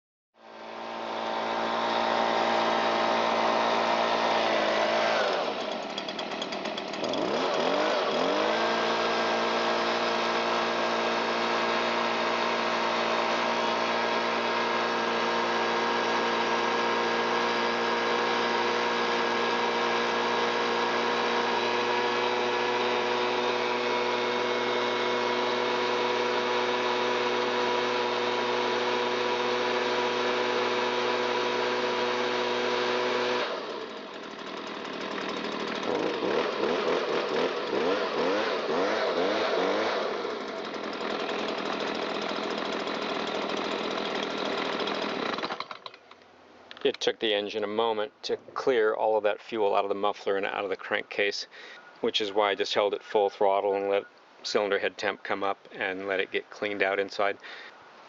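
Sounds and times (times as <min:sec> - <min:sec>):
leaf blower engine at full throttle: 0:00.4 - 0:46.0.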